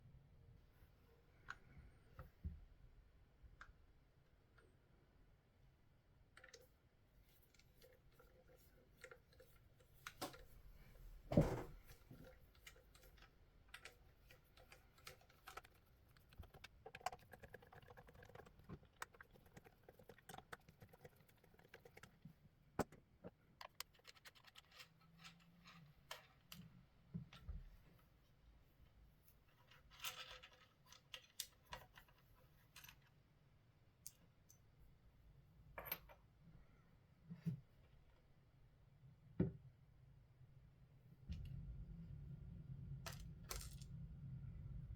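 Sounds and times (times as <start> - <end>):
small tools clicking and scraping: 12.1 - 26.7.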